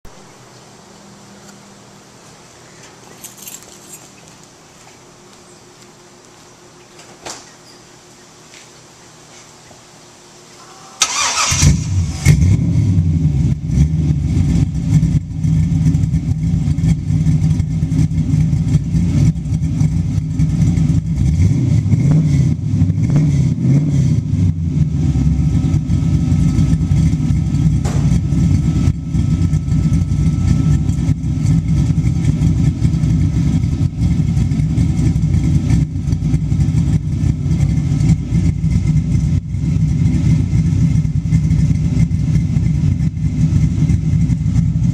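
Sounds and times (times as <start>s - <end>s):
engine cranking: 11.0s - 12.4s
loud engine idling: 24.5s - 44.9s.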